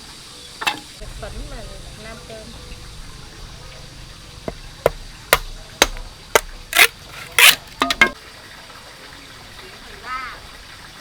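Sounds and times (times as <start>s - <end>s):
chopping strikes: 4.5s - 8.2s
rasping strokes: 4.5s - 8.2s.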